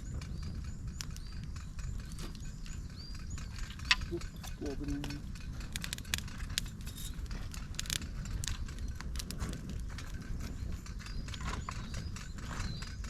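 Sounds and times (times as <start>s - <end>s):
campfire crackling: 0.0s - 13.0s
low rumble: 0.0s - 13.0s
sharp pops of fire: 3.6s - 11.8s.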